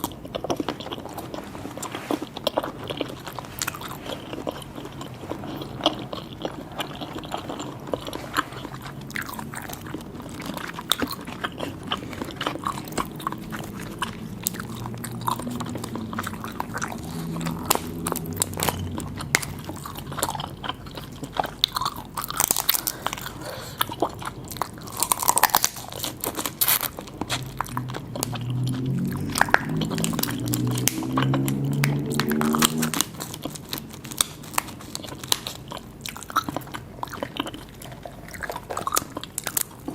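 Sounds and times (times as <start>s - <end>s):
crunching and wet chewing: 0.0s - 39.9s
low hum: 4.3s - 23.4s, 26.2s - 34.8s.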